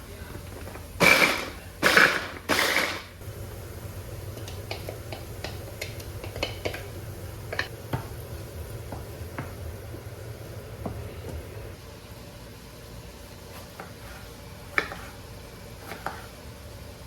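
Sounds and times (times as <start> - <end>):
low steady hum: 3.2 - 13.6.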